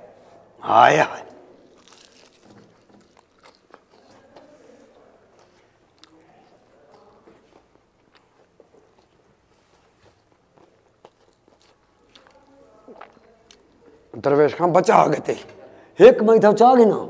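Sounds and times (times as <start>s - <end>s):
chewing crispy fried chicken: 1.2s - 14.2s.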